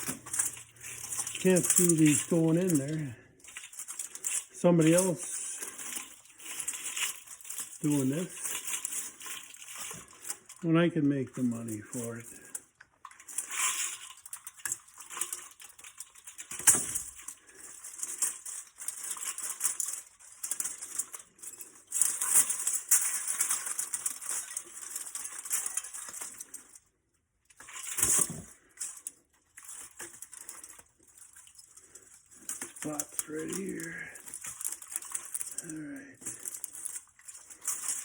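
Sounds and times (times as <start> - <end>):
metal fins tearing and crinkling: 0.0 - 38.0.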